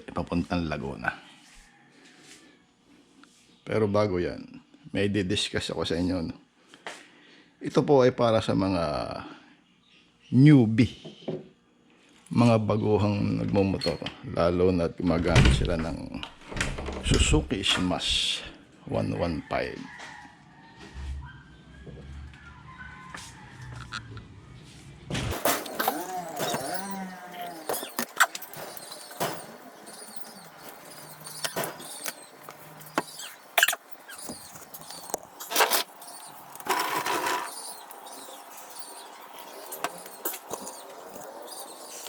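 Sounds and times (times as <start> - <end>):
birds chirping: 25.3 - 42.0
chickens calling: 25.4 - 42.0.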